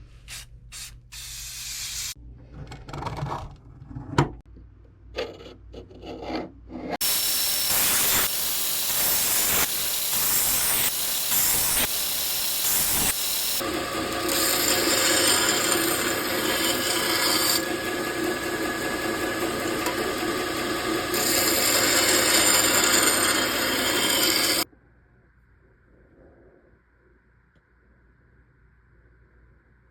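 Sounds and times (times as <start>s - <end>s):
short scrapes and knocks: 5.2s - 7.0s
grinder rasping on knife blade: 7.0s - 24.6s
grinder whine: 7.0s - 24.7s.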